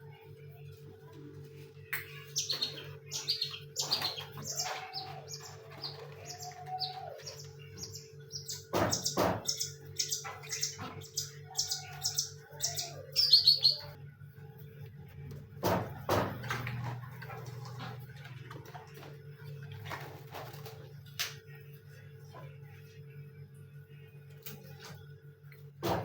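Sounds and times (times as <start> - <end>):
steady low hum: 0.0 - 26.0
songbirds chirping: 0.1 - 14.8
knocks: 8.6 - 9.6.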